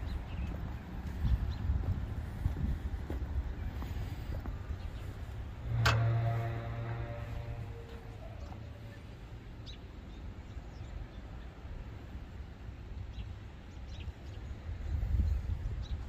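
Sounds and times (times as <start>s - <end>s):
low rumble: 4.5s - 8.7s.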